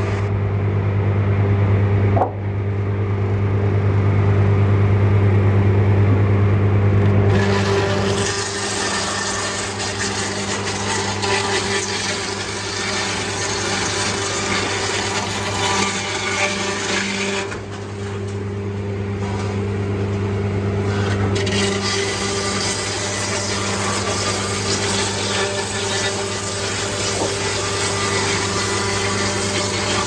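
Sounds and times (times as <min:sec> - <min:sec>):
motor hum: 0:00.0 - 0:30.0
rough grinding noise: 0:07.3 - 0:18.3, 0:20.8 - 0:30.0.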